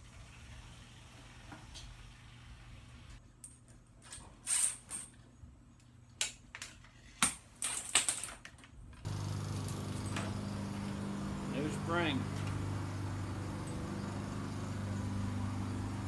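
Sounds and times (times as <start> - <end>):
steady low hum: 9.1 - 16.0.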